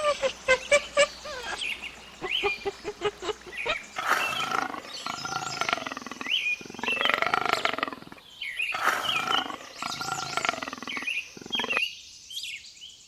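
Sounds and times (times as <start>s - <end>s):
animal short pitched calls: 0.0s - 4.8s
animal roar-like call: 0.0s - 11.8s.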